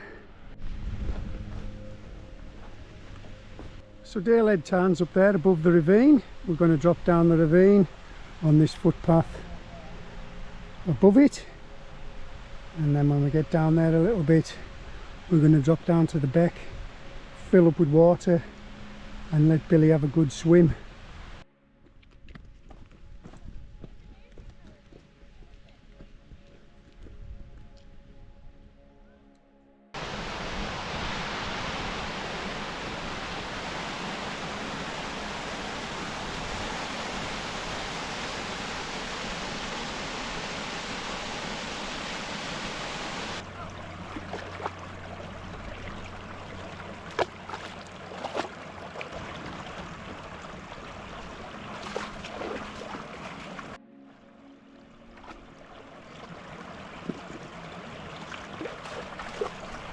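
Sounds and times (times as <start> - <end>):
water rushing over waterfalls: 30.0 - 53.8, 55.4 - 59.9.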